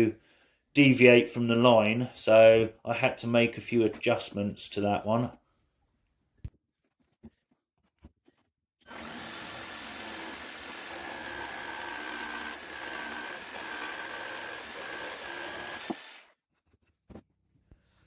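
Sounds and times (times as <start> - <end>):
jigsaw cutting wood: 8.8 - 16.3.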